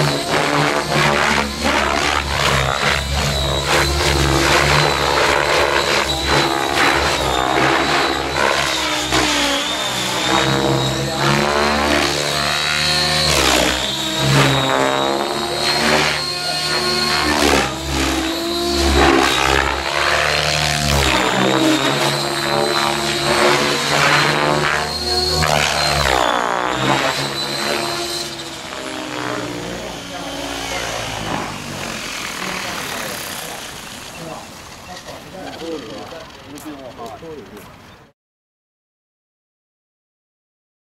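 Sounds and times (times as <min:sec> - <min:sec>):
high motor whine: 0:00.0 - 0:38.0
helicopter rotor: 0:00.0 - 0:38.2.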